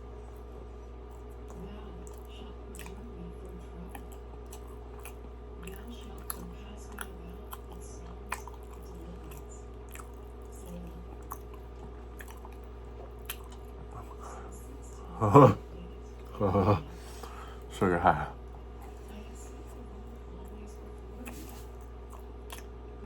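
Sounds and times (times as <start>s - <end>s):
steady low hum: 0.0s - 23.0s
person chewing: 0.2s - 3.0s, 3.9s - 15.6s, 21.2s - 22.8s.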